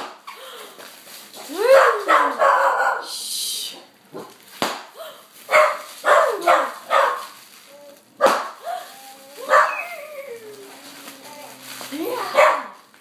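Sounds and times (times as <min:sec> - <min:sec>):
sharp pop: 0:04.2 - 0:05.0, 0:08.2 - 0:08.6
dog whining yelp: 0:08.2 - 0:12.7
small dog yipping: 0:09.4 - 0:10.4.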